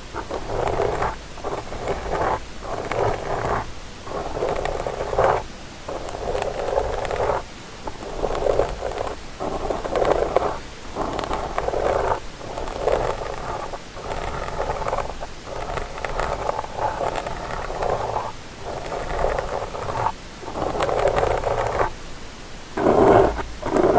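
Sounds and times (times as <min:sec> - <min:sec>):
scratchy scraping on microphone: 0:00.0 - 0:22.0, 0:22.8 - 0:23.9.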